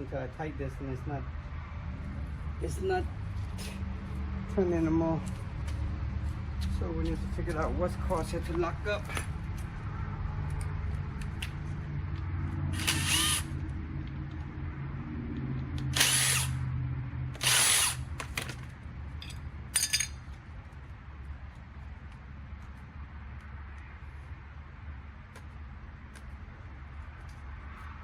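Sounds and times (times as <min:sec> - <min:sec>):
power drill running: 0:12.7 - 0:13.5, 0:15.9 - 0:16.6, 0:17.4 - 0:18.0.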